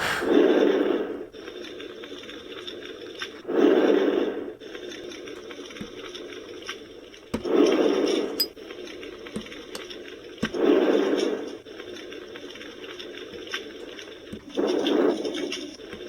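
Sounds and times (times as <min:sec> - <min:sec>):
short rush of noise: 0:00.0 - 0:00.4.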